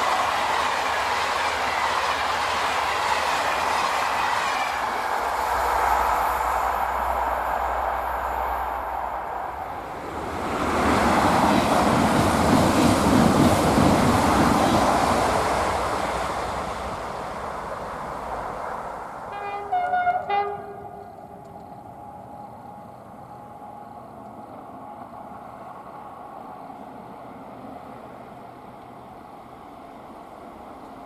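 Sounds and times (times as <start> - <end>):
train wheels rushing on rail: 0.0 - 31.0
train horn: 19.3 - 21.4.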